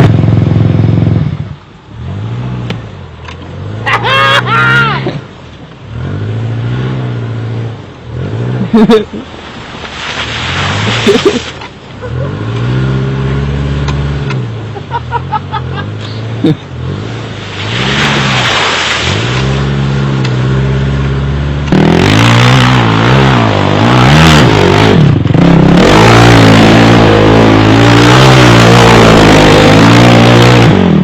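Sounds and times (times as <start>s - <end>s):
quad engine revving: 15.3s - 31.0s.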